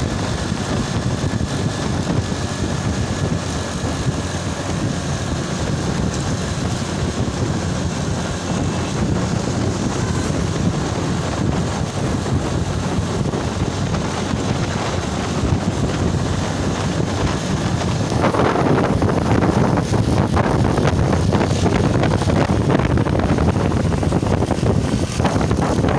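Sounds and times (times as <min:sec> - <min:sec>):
motorcycle engine running: 0:00.0 - 0:25.9
wind on microphone: 0:00.0 - 0:25.9.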